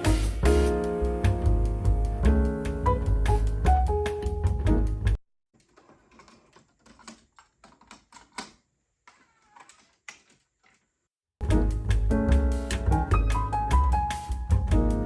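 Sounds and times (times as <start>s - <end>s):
music playing: 0.0s - 5.2s, 11.4s - 15.0s.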